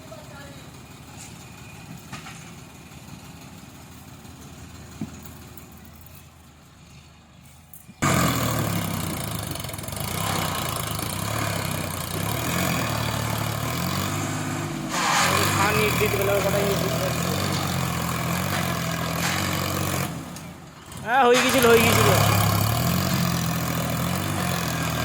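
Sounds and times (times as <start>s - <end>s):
tractor engine idling: 0.0s - 25.0s
loud engine running hard: 8.0s - 25.0s.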